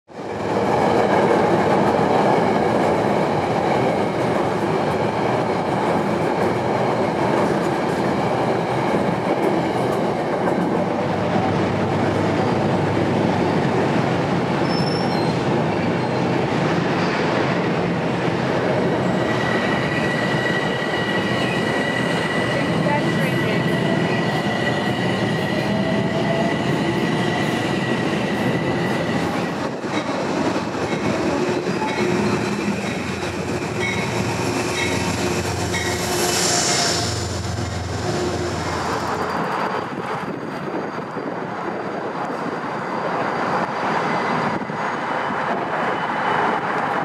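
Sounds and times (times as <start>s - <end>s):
train wheels rumbling on rails: 0.1s - 47.0s
high wheel squeal: 14.6s - 16.2s.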